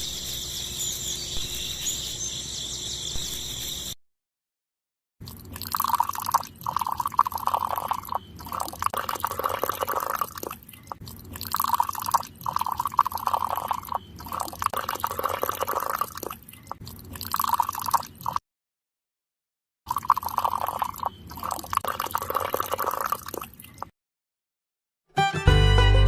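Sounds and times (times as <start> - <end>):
water splashing from pump outlet: 5.2 - 18.4, 19.9 - 23.9.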